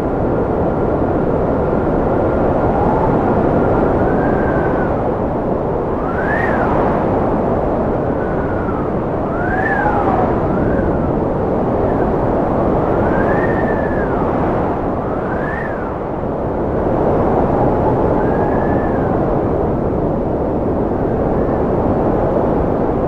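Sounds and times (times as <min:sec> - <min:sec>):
strong wind howling: 0:00.0 - 0:23.0.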